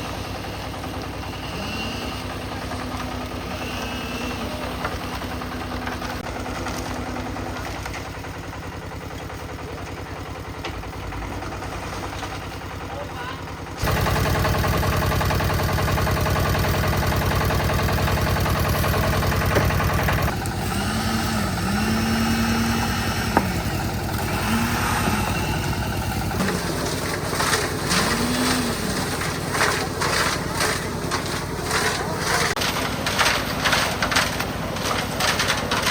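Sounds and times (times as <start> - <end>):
concrete mixer engine running: 0.0 - 35.9
short knocks and scrapes: 26.4 - 35.9.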